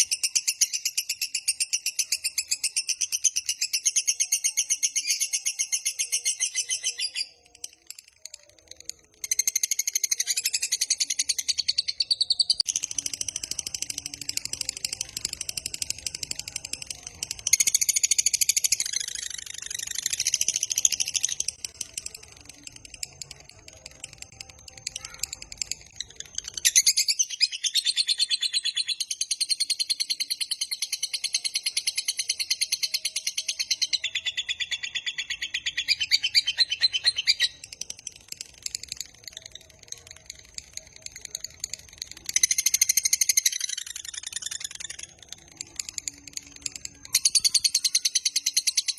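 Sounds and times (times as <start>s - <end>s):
bird chattering trill: 0.0s - 48.9s.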